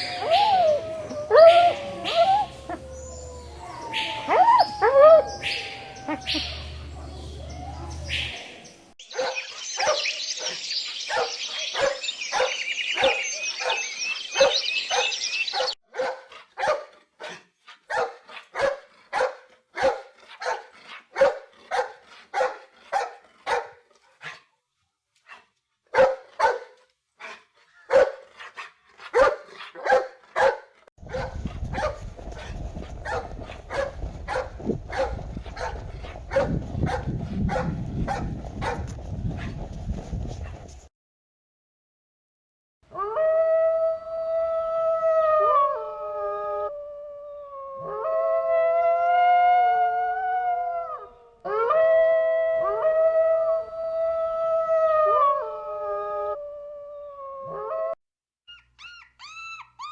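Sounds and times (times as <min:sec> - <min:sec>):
high chirping: 0:01.5 - 0:15.8
dog barking: 0:09.1 - 0:24.4, 0:25.2 - 0:39.7.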